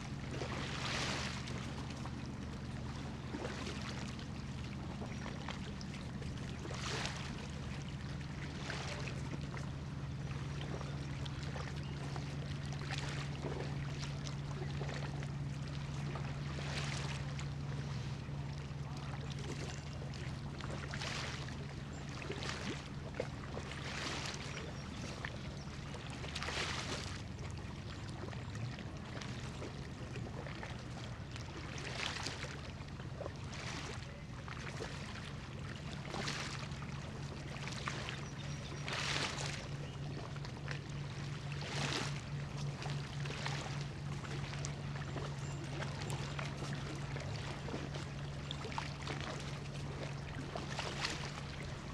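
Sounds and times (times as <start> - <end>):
water lapping: 0.0 - 51.9.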